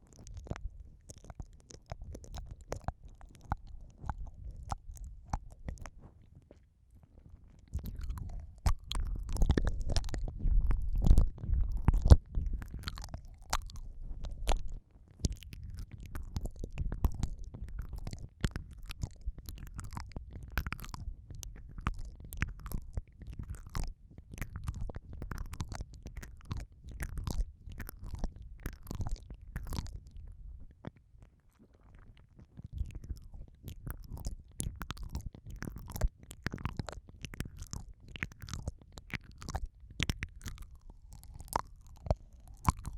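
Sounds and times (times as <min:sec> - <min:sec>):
wet mouth clicks and smacks: 0:00.0 - 0:06.2, 0:07.6 - 0:42.9
low muffled rumble: 0:07.8 - 0:20.4.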